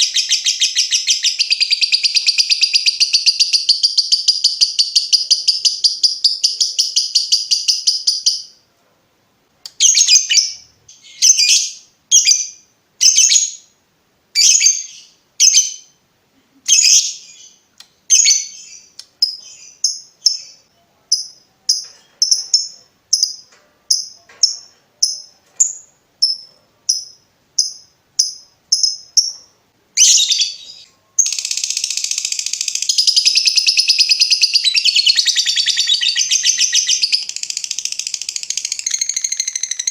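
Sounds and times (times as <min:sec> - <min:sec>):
lovebird chattering trill: 0:00.0 - 0:08.5, 0:21.2 - 0:39.9
lovebird sharp high chirps: 0:00.0 - 0:08.5, 0:16.7 - 0:39.9.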